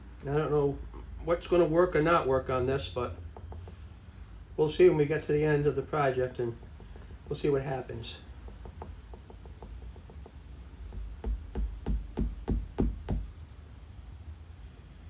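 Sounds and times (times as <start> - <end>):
dull knocks: 3.0 - 3.8, 8.4 - 13.3.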